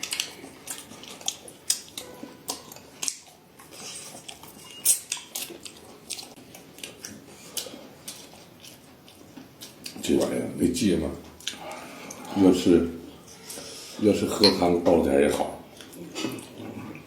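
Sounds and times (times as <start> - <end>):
tableware clinking on dishes: 14.3 - 15.0.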